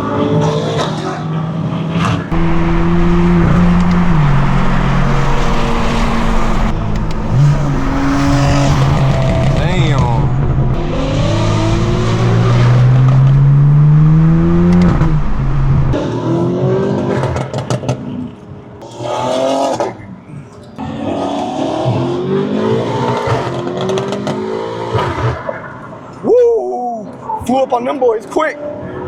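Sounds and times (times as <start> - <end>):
car engine accelerating hard: 2.1 - 18.2, 20.8 - 25.4
exhaust crackles: 2.3 - 16.0.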